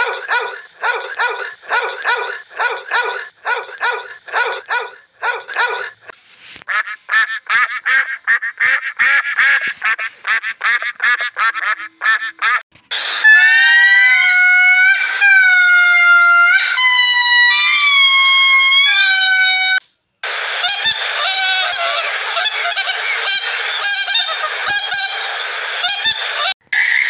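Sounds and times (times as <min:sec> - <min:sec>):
puppy barking: 0:00.0 - 0:06.1
geese honking: 0:06.7 - 0:26.5
loud high wavering call: 0:12.9 - 0:27.0.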